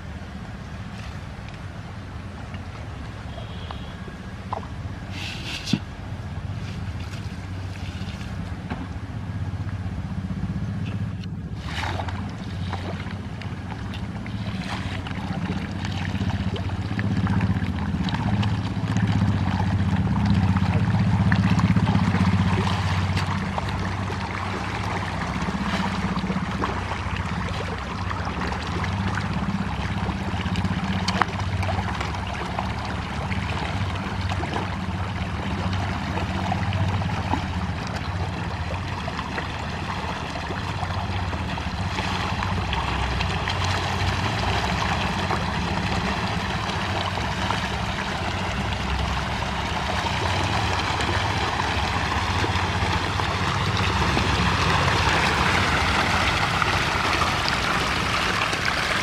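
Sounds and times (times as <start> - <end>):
fish splashing and gurgling: 0.0 - 59.0
steady low hum: 0.0 - 59.0.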